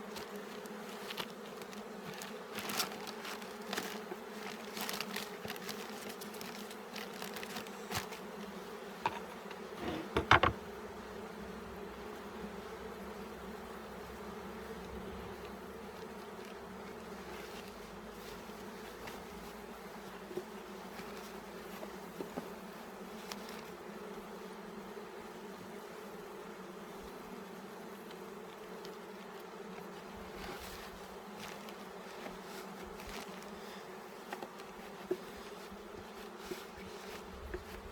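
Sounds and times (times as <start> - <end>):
bees buzzing: 0.0 - 20.9
sharp knocks: 9.8 - 10.6.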